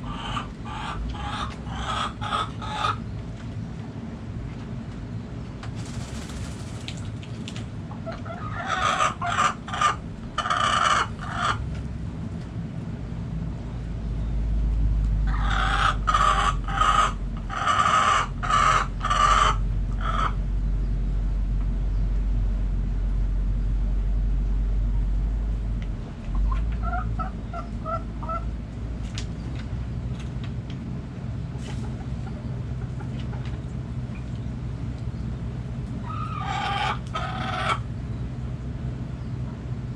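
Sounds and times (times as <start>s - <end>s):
chickens calling: 0.0s - 3.2s, 7.8s - 11.7s, 15.2s - 20.4s, 26.2s - 28.5s, 31.5s - 38.3s
low rumble: 19.6s - 30.4s.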